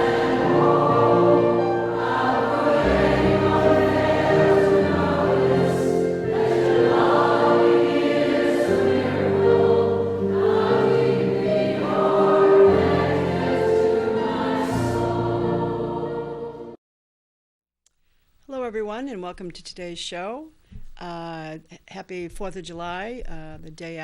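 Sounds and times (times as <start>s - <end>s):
choir singing held chords: 0.0s - 16.8s
musical accompaniment: 0.0s - 16.8s.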